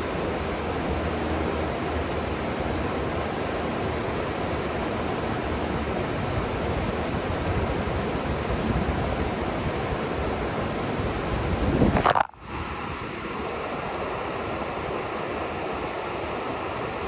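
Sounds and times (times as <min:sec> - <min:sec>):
river water rushing: 0:00.0 - 0:11.5.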